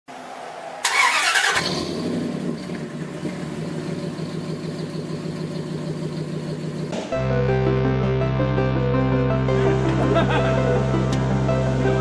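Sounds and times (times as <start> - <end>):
engine starting and idling: 0.8 - 6.9.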